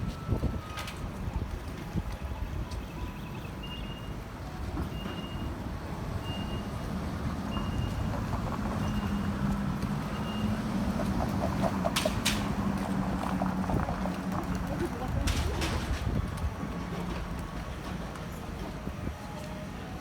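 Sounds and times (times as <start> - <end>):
city street traffic: 0.0 - 20.0
vehicle engine humming: 5.5 - 17.8.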